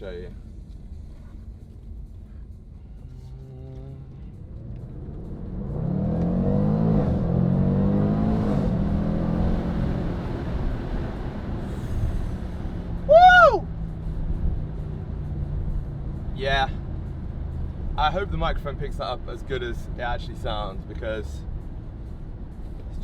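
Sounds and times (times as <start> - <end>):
car engine accelerating hard: 2.8 - 19.4.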